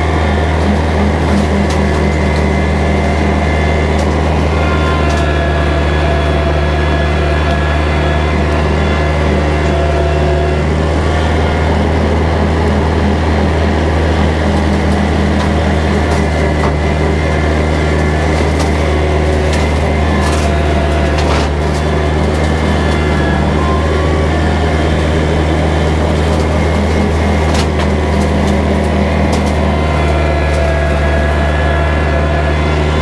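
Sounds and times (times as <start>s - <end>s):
tractor engine droning: 0.0s - 33.0s.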